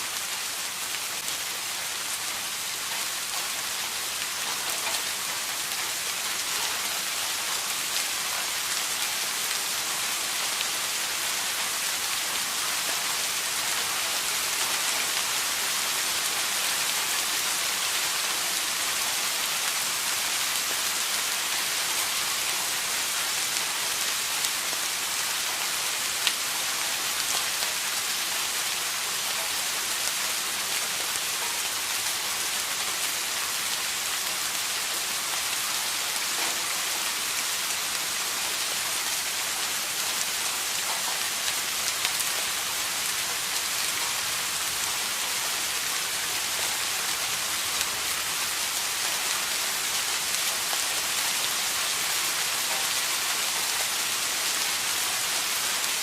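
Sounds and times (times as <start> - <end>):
steady rain: 0.0 - 56.0
raindrops ticking on surface: 0.1 - 56.0.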